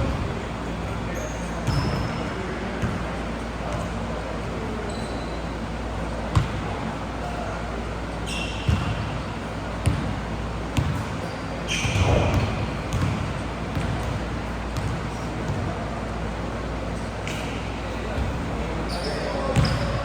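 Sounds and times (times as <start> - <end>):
sneakers squeaking on hardwood: 1.1 - 3.0, 4.8 - 5.6, 8.3 - 9.2, 10.8 - 14.2, 17.3 - 20.0
basketball bouncing on court: 1.6 - 2.2, 2.8 - 3.0, 6.3 - 6.7, 8.6 - 9.2, 9.8 - 10.2, 10.8 - 15.8, 19.4 - 20.0.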